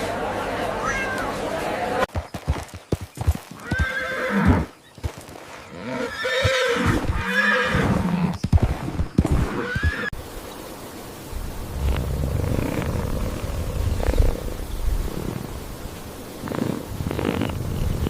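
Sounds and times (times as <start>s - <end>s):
hoof clip-clops: 2.1s - 5.7s
horse whinnying: 3.6s - 4.7s, 5.8s - 8.3s.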